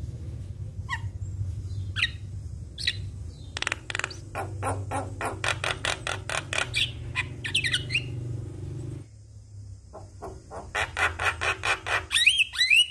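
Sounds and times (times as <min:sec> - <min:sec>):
bird harsh grating calls: 0:01.8 - 0:08.3, 0:10.0 - 0:12.9
bird whistles rising and falling: 0:12.1 - 0:12.9.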